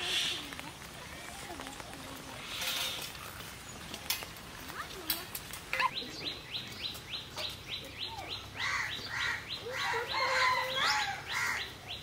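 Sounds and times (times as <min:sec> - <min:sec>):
birds chirping and warbling: 0:00.0 - 0:12.0.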